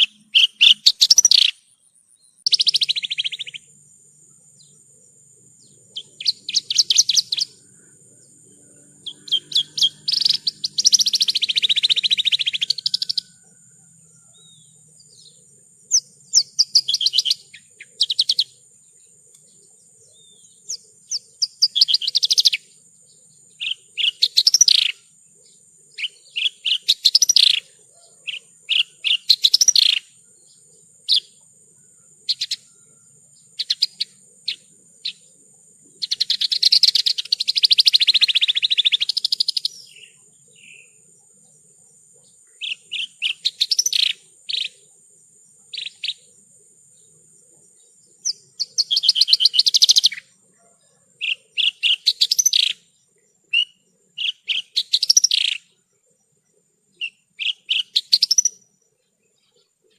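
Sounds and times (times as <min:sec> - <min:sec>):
lark twittering and chirping: 0:00.0 - 0:01.8, 0:02.4 - 0:03.7, 0:05.6 - 0:07.7, 0:09.0 - 0:13.6, 0:14.2 - 0:18.6, 0:19.4 - 0:22.7, 0:23.5 - 0:25.0, 0:25.9 - 0:31.4, 0:32.3 - 0:32.7, 0:33.5 - 0:35.3, 0:36.0 - 0:41.0, 0:42.2 - 0:44.9, 0:45.7 - 0:46.3, 0:48.1 - 0:50.3, 0:51.2 - 0:52.9, 0:53.5 - 0:55.8, 0:57.0 - 0:58.7
buzzy bird trill: 0:00.0 - 0:03.8, 0:04.5 - 0:35.2, 0:36.0 - 0:41.0, 0:42.2 - 0:45.0, 0:45.6 - 0:46.4, 0:48.1 - 0:50.3, 0:51.2 - 0:52.9, 0:53.5 - 0:55.8, 0:57.0 - 0:58.7.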